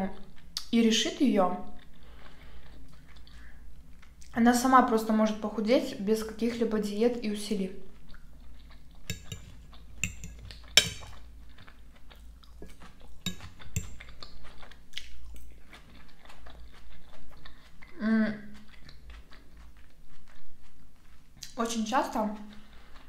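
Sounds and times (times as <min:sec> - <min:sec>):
chewing salad: 0:00.0 - 0:23.0
fork clinking and scraping on plate: 0:09.1 - 0:11.3, 0:12.6 - 0:14.2.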